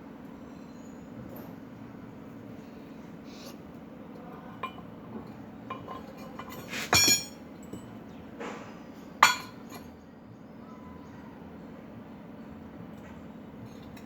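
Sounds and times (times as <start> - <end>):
steel clanking and clinking: 5.7 - 7.9.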